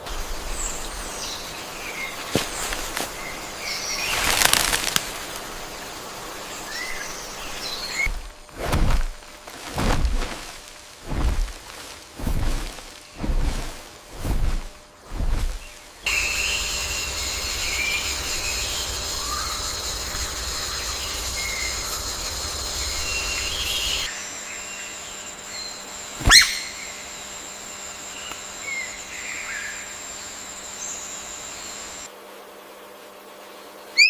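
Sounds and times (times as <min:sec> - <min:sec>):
steady high whine: 0:00.0 - 0:32.1
bird calls: 0:15.4 - 0:27.3
faint chirps: 0:15.6 - 0:32.1.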